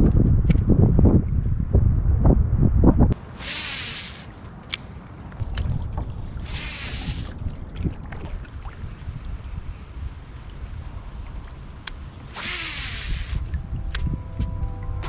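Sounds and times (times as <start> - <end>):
wind buffeting microphone: 0.0 - 15.0
paddle splashing water: 5.4 - 13.6.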